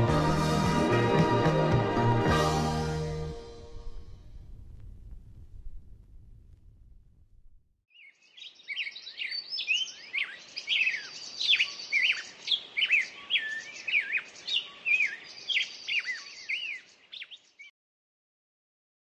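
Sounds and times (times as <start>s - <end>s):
faint outdoor hiss: 3.0s - 17.6s
songbird singing: 7.9s - 17.7s.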